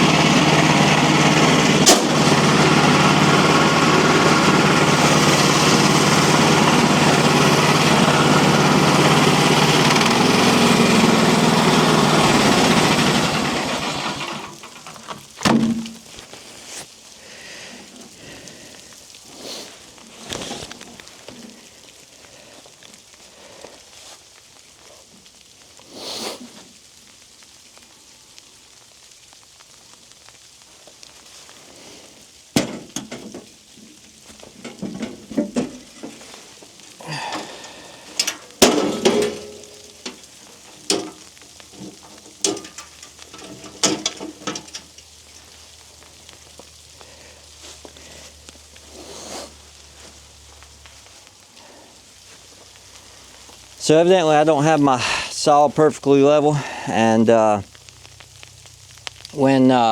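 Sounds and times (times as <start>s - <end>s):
sawmill engine running: 0.0s - 16.0s, 34.4s - 45.8s
knocks and clanks: 9.8s - 16.1s, 32.6s - 33.5s, 34.4s - 36.2s, 38.2s - 45.0s.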